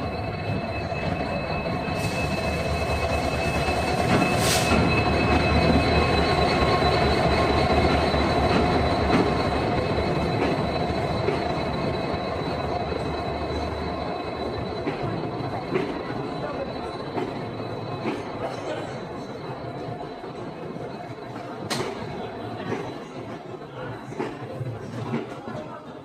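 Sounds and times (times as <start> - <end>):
wheels and brakes squealing: 0.0 - 23.2
train wheels on rails: 0.0 - 26.0.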